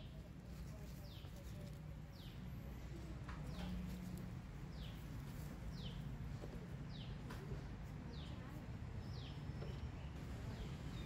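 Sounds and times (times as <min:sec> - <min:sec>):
bird chirping: 0:04.7 - 0:06.1.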